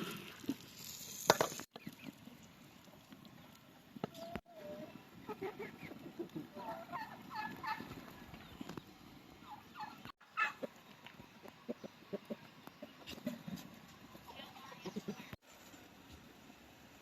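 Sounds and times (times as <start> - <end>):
poultry calling: 4.2 - 8.5, 9.4 - 10.7.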